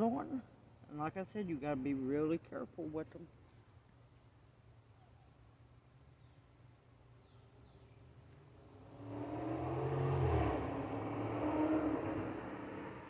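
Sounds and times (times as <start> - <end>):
vehicle driving by: 8.6 - 13.0.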